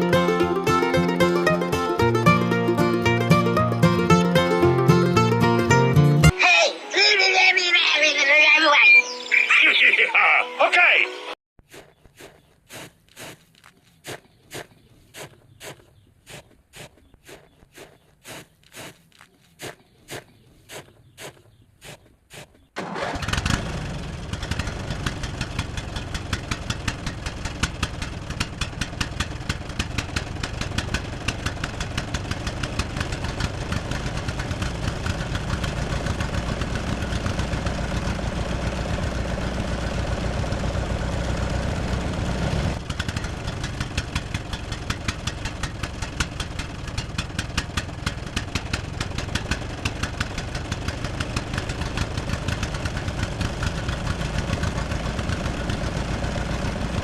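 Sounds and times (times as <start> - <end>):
engine idling with knocking: 23.0 - 57.0.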